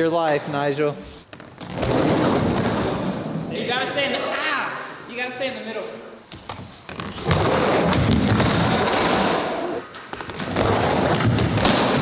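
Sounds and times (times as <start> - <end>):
rumble of skateboard wheels: 10.2 - 12.0.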